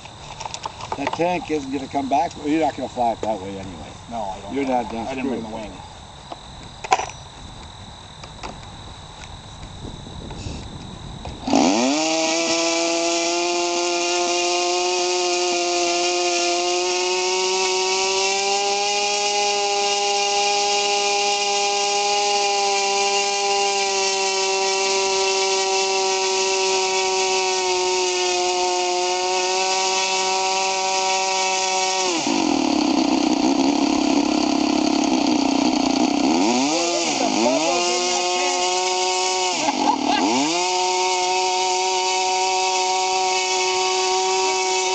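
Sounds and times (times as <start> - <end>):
model aircraft engine revving: 9.6 - 44.9.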